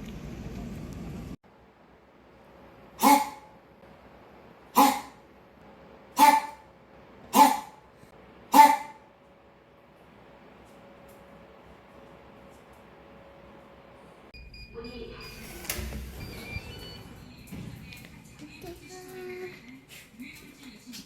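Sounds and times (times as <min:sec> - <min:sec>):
dog barking: 0:03.0 - 0:03.5, 0:04.8 - 0:05.2, 0:06.2 - 0:06.7, 0:07.3 - 0:07.8, 0:08.5 - 0:09.1.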